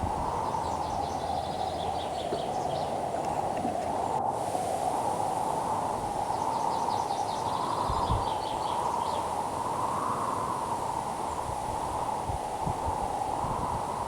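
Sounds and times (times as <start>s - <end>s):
wind blowing: 0.0s - 14.0s
bird chirping: 0.3s - 3.0s.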